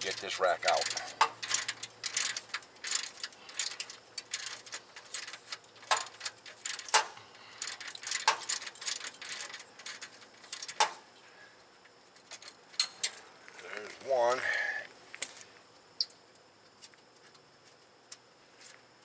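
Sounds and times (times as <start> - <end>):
ratchet wrench clicking: 0.7 - 5.2.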